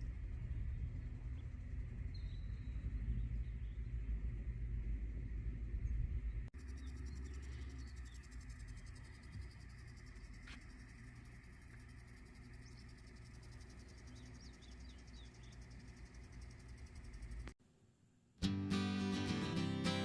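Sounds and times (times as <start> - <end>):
low outdoor rumble: 0.0 - 17.6
bird chirps: 0.4 - 4.2, 5.8 - 17.4.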